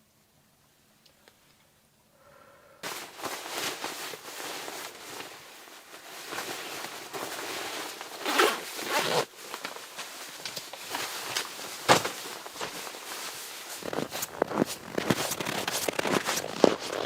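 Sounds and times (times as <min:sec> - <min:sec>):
fabric rustling: 0:02.8 - 0:17.0
zipper being pulled: 0:06.6 - 0:09.3, 0:13.8 - 0:17.0.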